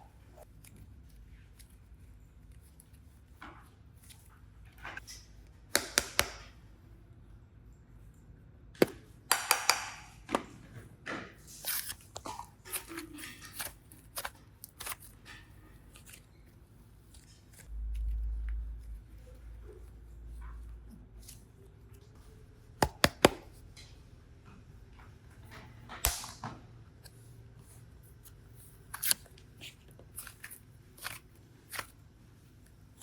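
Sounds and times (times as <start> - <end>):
clay and slime clicking and crinkling: 11.6 - 20.0, 27.0 - 33.0.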